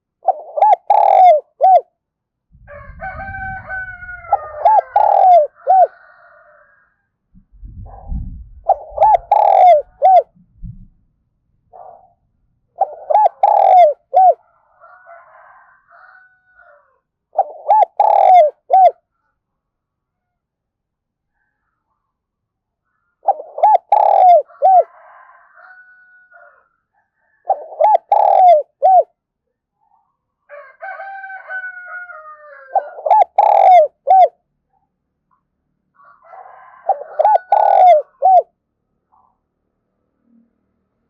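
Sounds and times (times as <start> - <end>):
dove cooing: 0.0 - 1.9, 3.1 - 6.2, 7.8 - 10.3, 12.8 - 14.4, 17.3 - 19.0, 23.2 - 25.1, 27.4 - 29.1, 32.6 - 34.4, 36.7 - 38.5.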